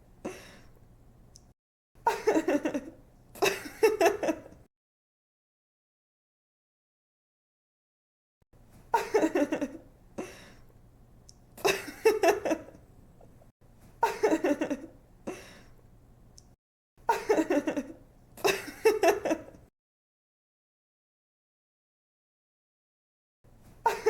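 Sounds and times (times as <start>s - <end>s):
young woman giggling: 2.1s - 4.6s, 8.9s - 9.8s, 14.0s - 15.4s, 17.1s - 19.6s.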